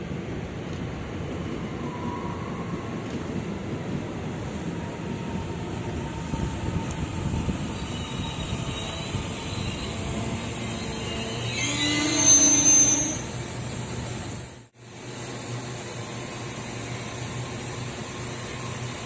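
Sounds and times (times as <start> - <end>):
train rumbling over rails: 0.0 - 19.0
metallic squeal of steel wheels: 6.2 - 13.9.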